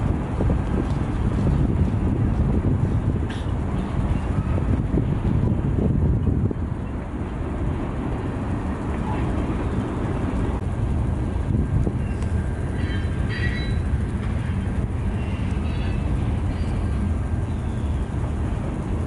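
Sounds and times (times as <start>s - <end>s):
train wheels rumbling on rail: 0.0s - 19.0s
high-pitched wheel squeals: 12.0s - 16.9s.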